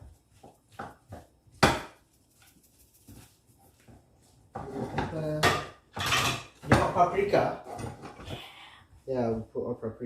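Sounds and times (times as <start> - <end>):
utensil scraping in a pan: 2.3 - 8.3.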